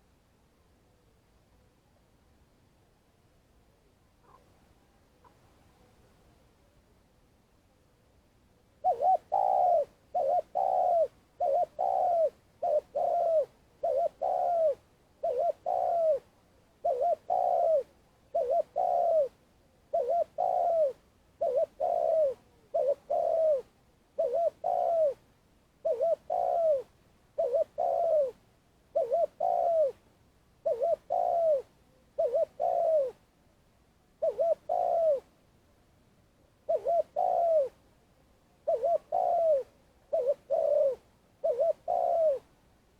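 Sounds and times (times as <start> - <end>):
dove cooing: 4.2 - 4.5, 8.8 - 25.2, 25.8 - 30.0, 30.6 - 33.2, 34.2 - 35.3, 36.7 - 37.8, 38.6 - 42.5.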